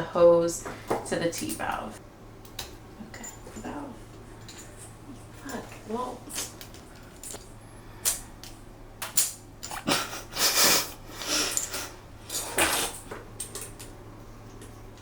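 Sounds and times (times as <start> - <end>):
metal fittings clinking and scraping: 11.4 - 13.8.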